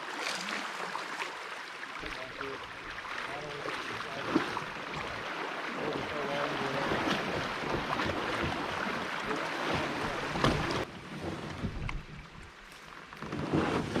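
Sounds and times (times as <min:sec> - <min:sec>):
water sloshing and splashing: 0:00.0 - 0:14.0
kayak knocks: 0:02.1 - 0:12.5.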